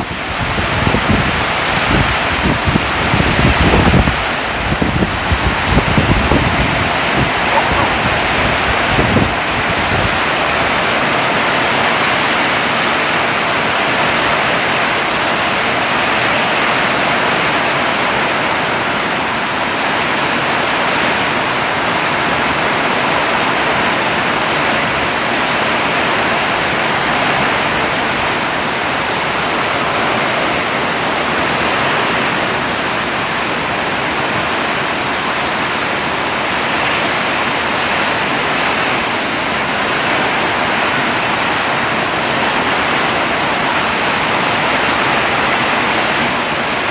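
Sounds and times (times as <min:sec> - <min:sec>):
wind bumps on microphone: 0:00.0 - 0:10.8
heavy rain pouring: 0:00.0 - 0:46.9.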